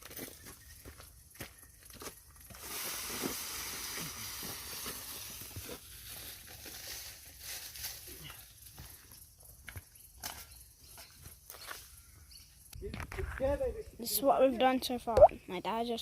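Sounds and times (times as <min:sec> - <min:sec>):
leaves and twigs crackling: 0:00.0 - 0:12.0
steady hiss: 0:02.5 - 0:08.1.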